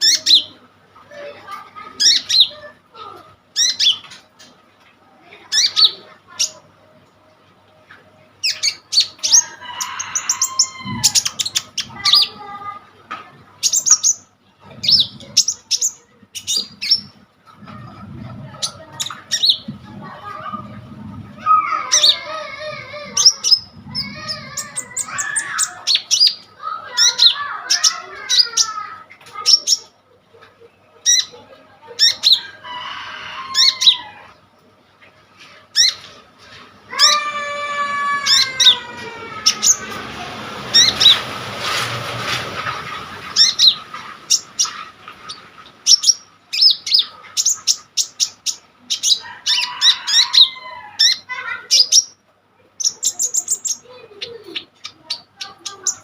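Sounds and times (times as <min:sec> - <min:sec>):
bird chirping and trilling: 0:00.0 - 0:00.6, 0:01.8 - 0:02.8, 0:03.5 - 0:04.6, 0:05.3 - 0:06.7, 0:08.4 - 0:12.5, 0:13.6 - 0:30.0, 0:30.6 - 0:34.4, 0:35.7 - 0:36.2, 0:37.0 - 0:40.1, 0:40.7 - 0:41.3, 0:43.2 - 0:52.2, 0:52.8 - 0:56.0
noisy rustling: 0:00.6 - 0:32.4, 0:34.2 - 0:48.0.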